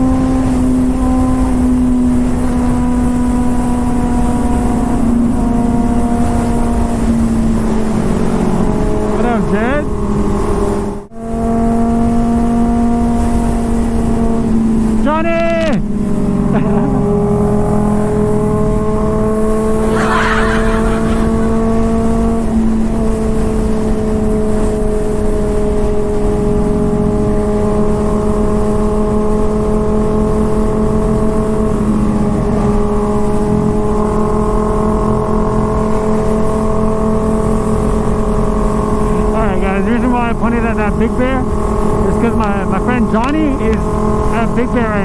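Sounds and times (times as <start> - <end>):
motorcycle engine with loud exhaust: 0.0 - 45.0
wind rushing on microphone: 12.4 - 34.3.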